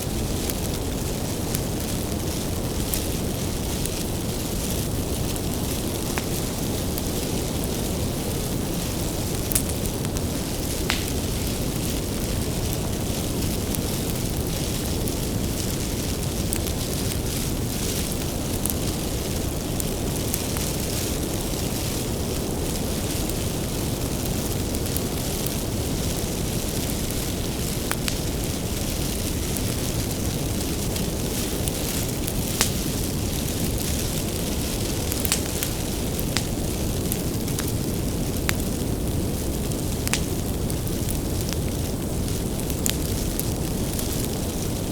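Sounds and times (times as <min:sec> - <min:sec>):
bonfire roaring: 0:00.0 - 0:44.9
firewood crackles and pops: 0:00.0 - 0:44.9.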